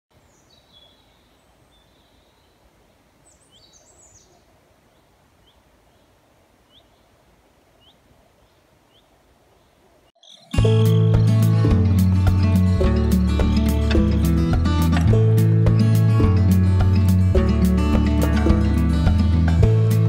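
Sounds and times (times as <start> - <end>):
faint songbirds singing: 0.1 - 11.5
woodland ambience hiss: 0.1 - 20.0.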